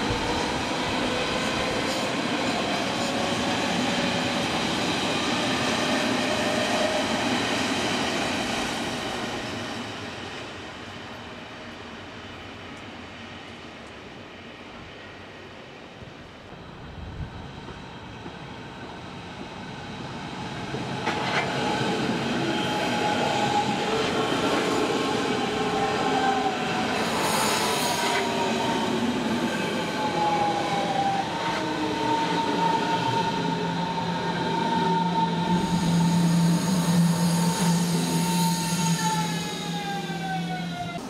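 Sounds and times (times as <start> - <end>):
electric train running whine: 16.5 - 41.0.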